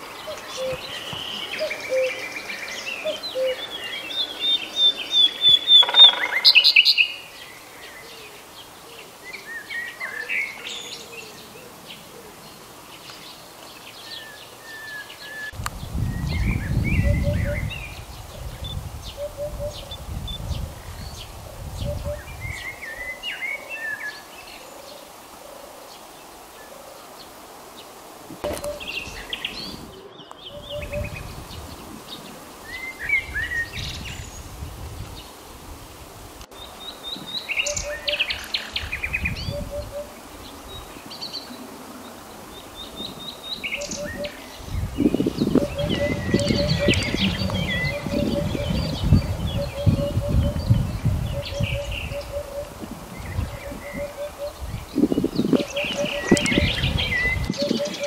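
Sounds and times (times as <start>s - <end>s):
soft low bird call: 0.0s - 7.1s, 28.4s - 31.4s, 43.8s - 52.8s
small birds chirping: 0.0s - 25.2s, 25.9s - 35.4s, 36.5s - 58.0s
low rumble: 44.7s - 49.8s.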